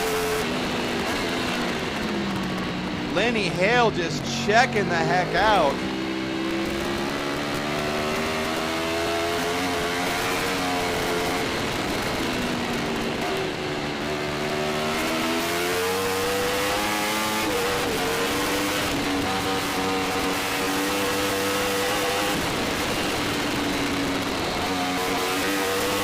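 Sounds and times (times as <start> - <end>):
motorcycle engine revving: 5.8 - 26.0.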